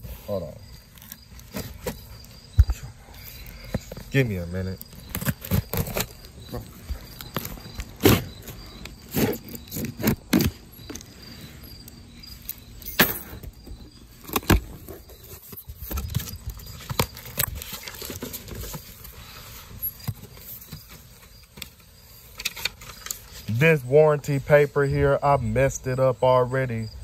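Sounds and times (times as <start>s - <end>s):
cardboard rustling: 0.7s - 11.2s, 13.6s - 23.5s.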